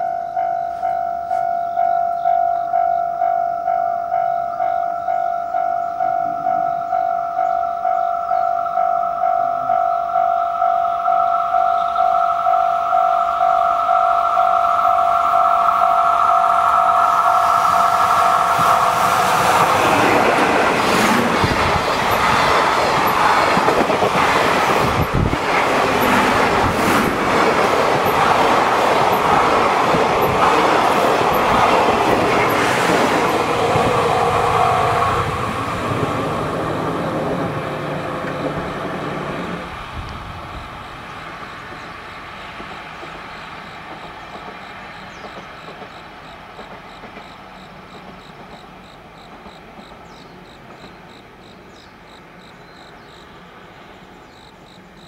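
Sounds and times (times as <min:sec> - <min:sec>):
two-tone crossing warning bell: 0:00.0 - 0:49.3
train wheels clattering: 0:14.9 - 0:39.5, 0:41.3 - 0:51.2.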